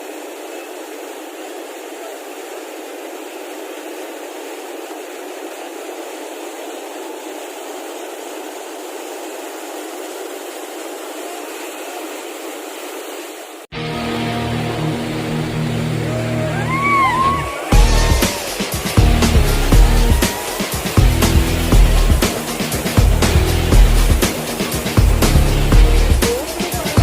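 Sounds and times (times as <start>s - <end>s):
white water rushing: 0.0s - 27.0s
music: 13.7s - 27.0s.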